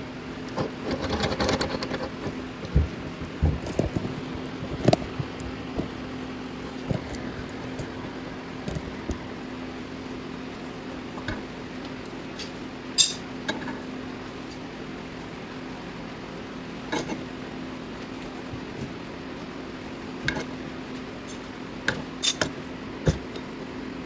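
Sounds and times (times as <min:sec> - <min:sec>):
steady low hum: 0:00.0 - 0:24.0
metallic clinks of tools on metal: 0:13.0 - 0:13.2.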